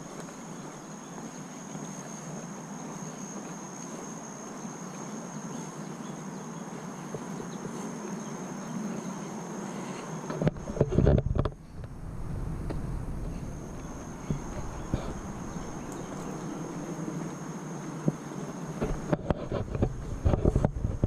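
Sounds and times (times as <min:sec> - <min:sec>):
distant road traffic hum: 0:00.0 - 0:21.0
insects shrilling: 0:11.6 - 0:19.2.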